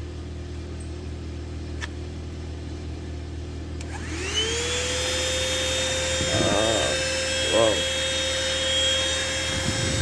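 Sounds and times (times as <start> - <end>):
vacuum cleaner motor whine: 3.8 - 10.0.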